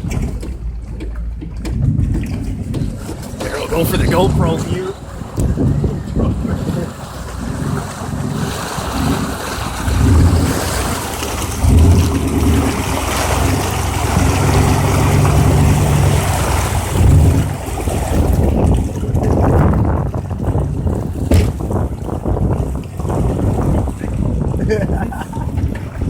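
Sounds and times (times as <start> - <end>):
vehicle engine humming: 0.0 - 26.0
water splashing: 0.0 - 26.0
wind buffeting microphone: 0.0 - 26.0.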